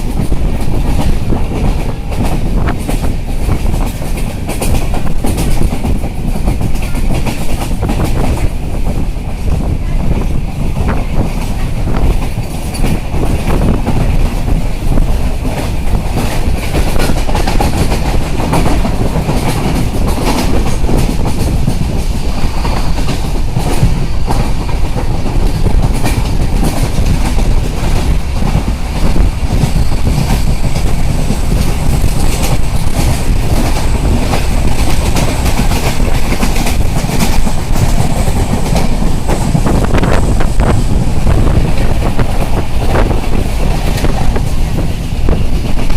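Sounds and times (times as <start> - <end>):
train rumble: 0.0 - 45.9
wheels clacking over rail joints: 10.9 - 45.9.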